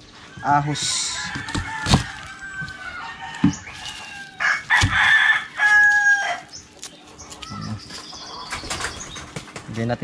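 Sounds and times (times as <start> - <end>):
rooster crowing: 0.6 - 6.5.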